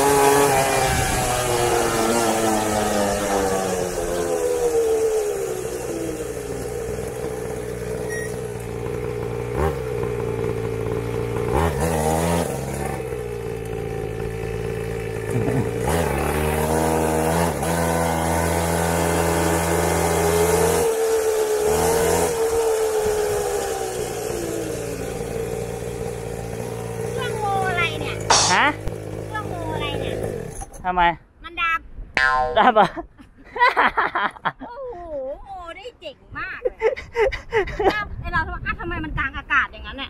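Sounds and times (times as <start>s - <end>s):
small two-stroke engines revving: 0.0s - 30.8s.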